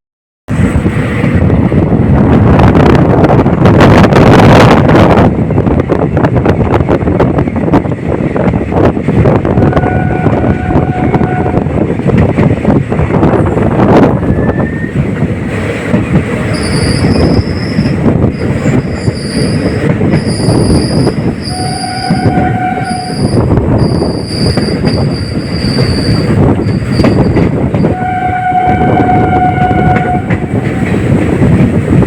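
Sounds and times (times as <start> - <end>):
train rumbling: 0.5 - 32.0
train horn blasts: 9.5 - 11.8, 21.4 - 24.0, 27.8 - 30.7
high-pitched wheel squeals: 16.5 - 30.2.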